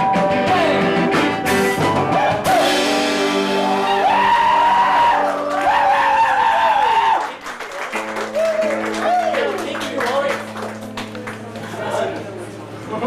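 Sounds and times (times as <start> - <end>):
held high bending notes: 0.0 - 5.6
live band playing: 0.0 - 5.8
cymbal crash ringing: 2.5 - 4.1.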